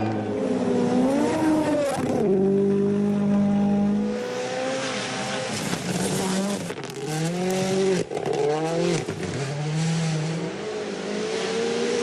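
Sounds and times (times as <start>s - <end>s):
rally car engine accelerating: 0.0s - 12.0s.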